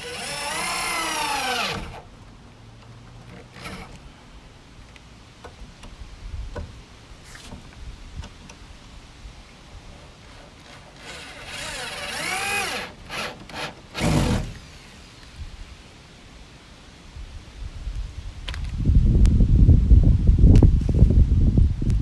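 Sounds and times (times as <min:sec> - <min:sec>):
power drill driving screw into wood: 0:00.0 - 0:02.0, 0:03.6 - 0:04.0, 0:10.6 - 0:15.0.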